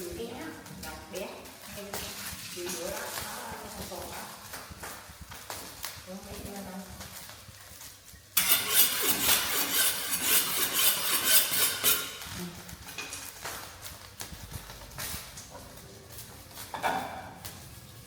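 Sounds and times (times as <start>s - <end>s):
utensils clinking on pan: 8.4s - 13.6s.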